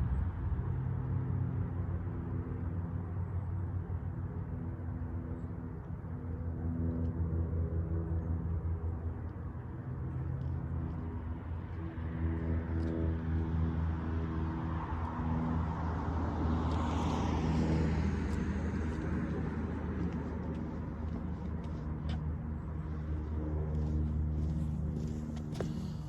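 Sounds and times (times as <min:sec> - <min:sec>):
vehicle engine running: 0:18.3 - 0:26.0.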